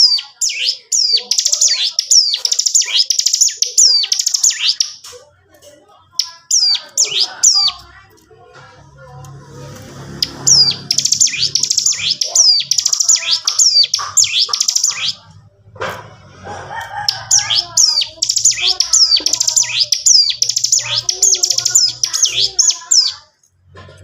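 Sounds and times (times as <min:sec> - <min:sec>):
bird singing rapid drilling song: 0:00.0 - 0:05.1, 0:06.2 - 0:07.9, 0:09.9 - 0:15.2, 0:17.1 - 0:23.2.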